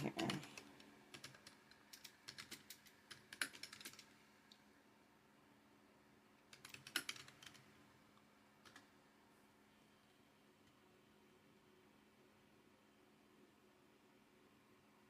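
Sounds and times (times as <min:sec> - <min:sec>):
typing on computer keyboard: 0:00.0 - 0:04.2, 0:06.4 - 0:07.8, 0:08.6 - 0:09.0.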